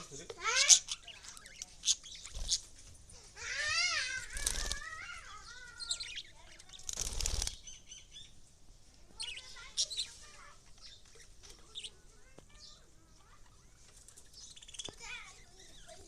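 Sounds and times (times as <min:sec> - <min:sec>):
lovebirds chirping: 0:00.0 - 0:16.0
wing flapping: 0:02.2 - 0:03.0, 0:03.8 - 0:05.3, 0:06.6 - 0:07.7.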